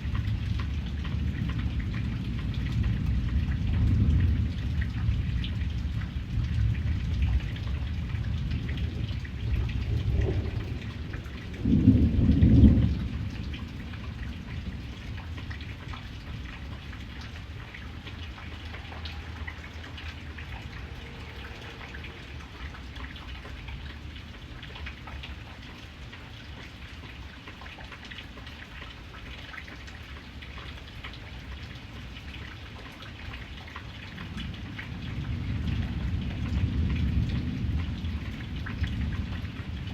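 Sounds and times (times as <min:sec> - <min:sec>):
rolling thunder: 0:00.0 - 0:24.2, 0:34.2 - 0:39.9
steady rain: 0:00.0 - 0:39.9.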